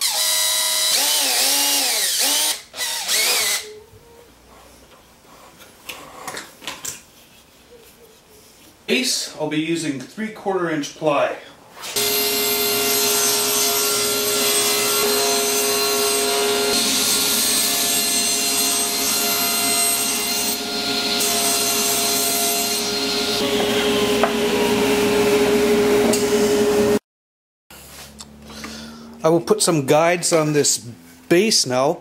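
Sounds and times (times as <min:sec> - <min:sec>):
power saw cutting plywood: 0:00.0 - 0:03.6, 0:11.8 - 0:27.0.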